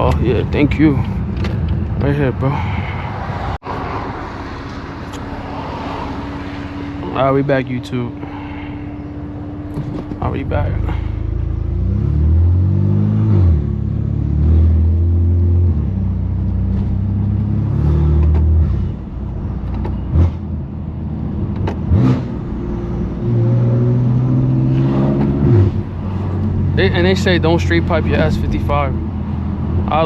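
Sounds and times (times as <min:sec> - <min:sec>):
exhaust cracks: 0:03.6 - 0:08.4
loud exhaust revving through gears: 0:08.2 - 0:19.1, 0:21.8 - 0:30.0.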